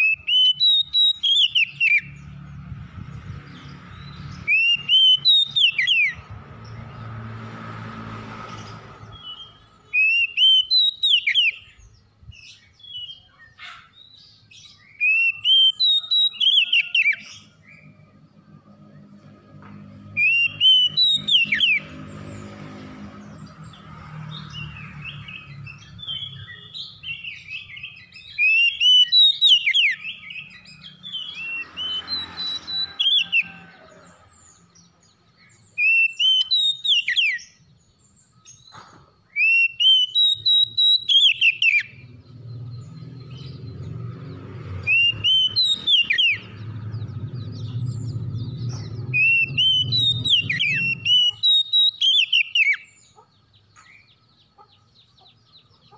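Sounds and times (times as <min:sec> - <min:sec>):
songbird whistling: 0:00.0 - 0:02.2, 0:04.4 - 0:06.2, 0:09.1 - 0:13.9, 0:14.7 - 0:17.9, 0:20.2 - 0:21.9, 0:25.3 - 0:33.6, 0:35.6 - 0:37.6, 0:39.3 - 0:42.0, 0:44.8 - 0:46.5, 0:47.4 - 0:53.1.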